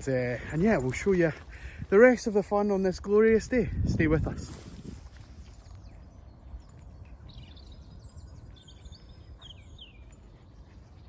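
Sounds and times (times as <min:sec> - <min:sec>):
small birds chirping: 0:04.8 - 0:11.0.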